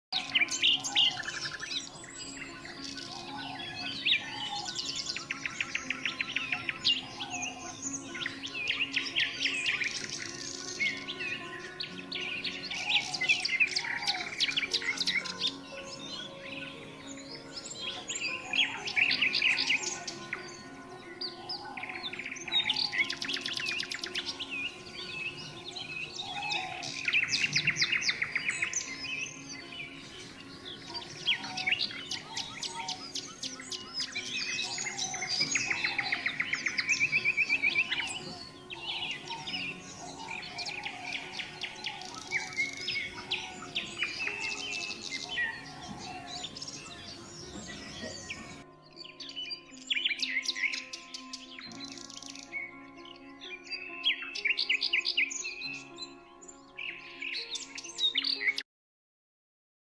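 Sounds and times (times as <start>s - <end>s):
songbirds singing: 0.0s - 58.6s
loud bird trills: 0.2s - 16.2s, 30.7s - 52.8s.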